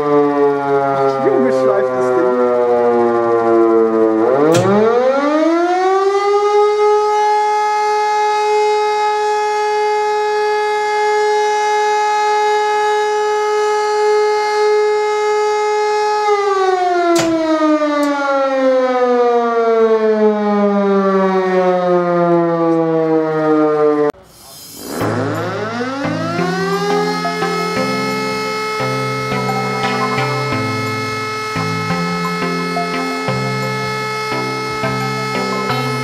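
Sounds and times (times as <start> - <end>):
electromechanical siren wailing: 0.0 - 36.0.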